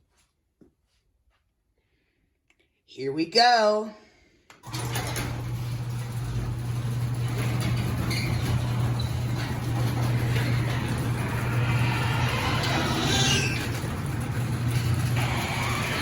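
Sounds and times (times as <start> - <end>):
chain and door travelling: 4.6 - 16.0
garage door opener motor hum: 4.6 - 16.0.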